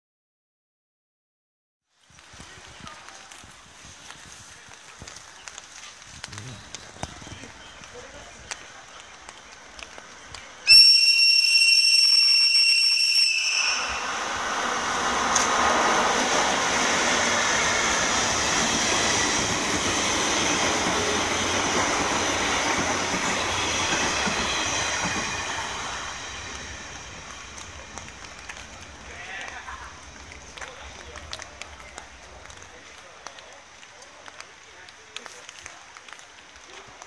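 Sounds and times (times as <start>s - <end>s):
train running through station: 2.1s - 37.0s
locomotive whistle: 10.6s - 14.4s.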